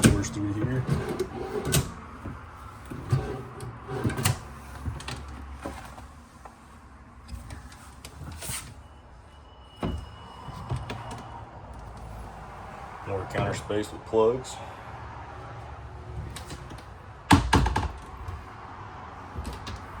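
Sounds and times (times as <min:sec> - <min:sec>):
cabinet doors and drawers shutting: 0:00.0 - 0:05.9, 0:16.1 - 0:18.4.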